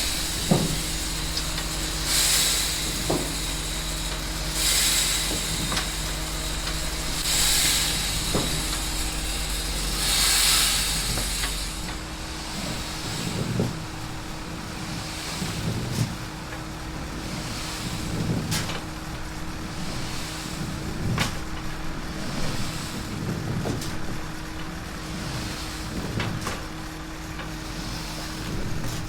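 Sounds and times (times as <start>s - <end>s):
hissing bursts: 0.0s - 14.5s
machine humming: 0.0s - 15.9s.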